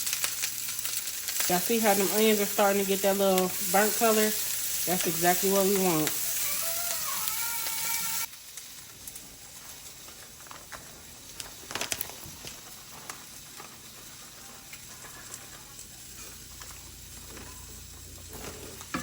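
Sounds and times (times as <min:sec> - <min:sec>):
food sizzling in a skillet: 0:00.0 - 0:19.0.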